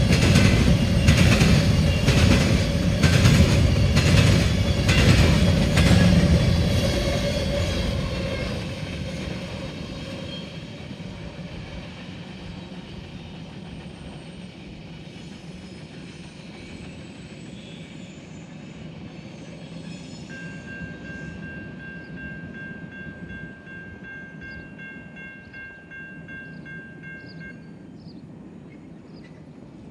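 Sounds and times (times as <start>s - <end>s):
freight train wheels rumbling: 0.0s - 29.9s
thin high tone: 20.1s - 27.8s.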